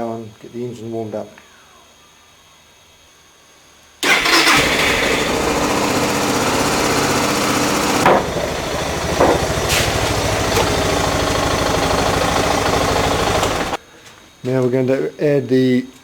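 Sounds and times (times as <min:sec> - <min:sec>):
motorcycle engine running: 0:04.0 - 0:13.8.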